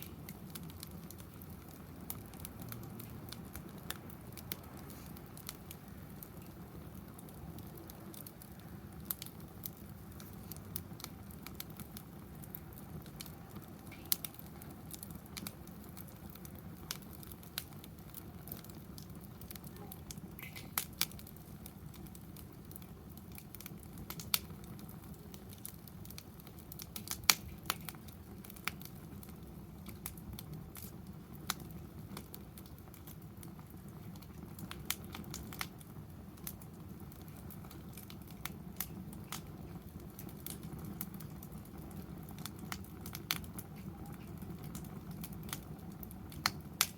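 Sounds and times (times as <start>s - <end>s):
burning wood popping and crackling: 0.0s - 46.9s
flame rushing: 0.0s - 46.9s.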